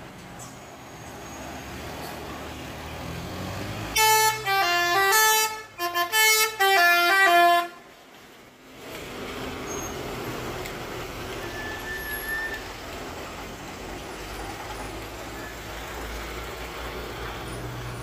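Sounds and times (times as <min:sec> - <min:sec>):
bus engine running: 0:00.0 - 0:18.0
multi-tone bus horn tune: 0:03.8 - 0:07.9.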